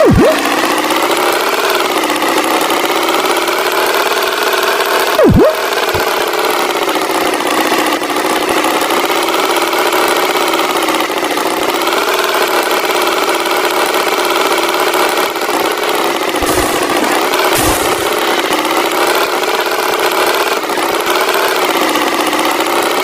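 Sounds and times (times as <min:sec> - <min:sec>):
swooping tone: 0:00.0 - 0:00.4, 0:05.2 - 0:05.7
cartoon tractor engine: 0:00.0 - 0:23.0.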